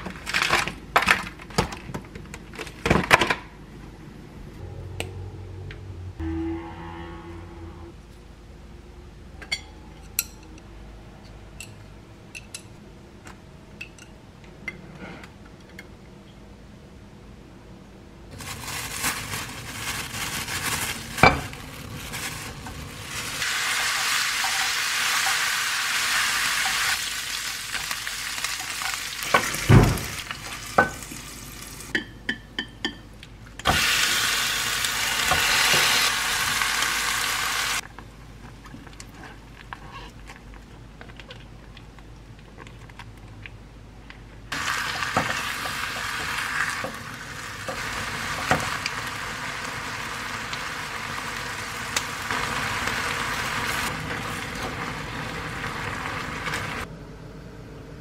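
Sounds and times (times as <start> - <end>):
meat sizzling in a pan: 23.0 - 31.9, 33.7 - 37.8, 44.6 - 56.8.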